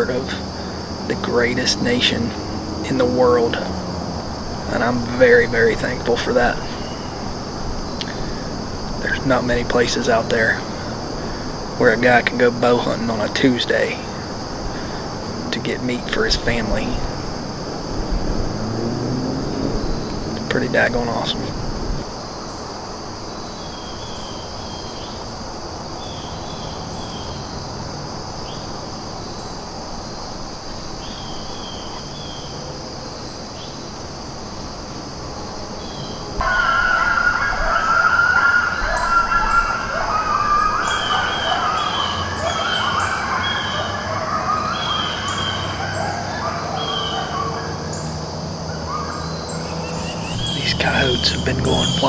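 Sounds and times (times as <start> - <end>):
coyotes howling and yipping: 0.0 - 52.0
insect trill: 0.0 - 52.0
bird chirps: 4.3 - 11.8, 28.5 - 33.9, 35.8 - 52.0
sirens: 16.4 - 22.1, 36.2 - 52.0.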